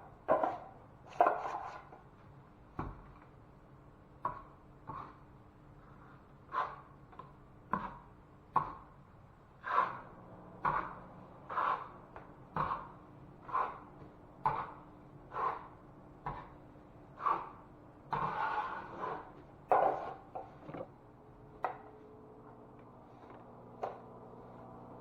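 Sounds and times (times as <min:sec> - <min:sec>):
hand tool scraping drywall: 0:00.3 - 0:02.0, 0:05.9 - 0:07.0, 0:09.6 - 0:16.5, 0:17.2 - 0:20.4.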